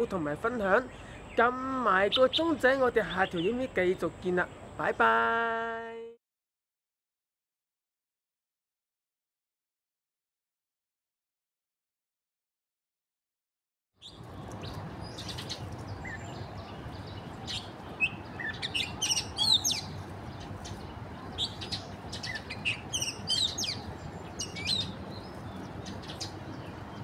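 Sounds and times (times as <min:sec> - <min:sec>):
outdoor background noise: 0:00.0 - 0:06.2, 0:14.0 - 0:27.0
small birds chirping: 0:00.4 - 0:05.2, 0:14.0 - 0:27.0.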